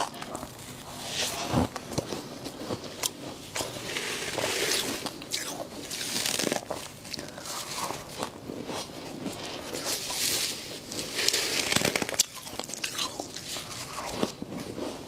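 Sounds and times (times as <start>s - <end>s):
crunching frost: 0.0s - 15.0s.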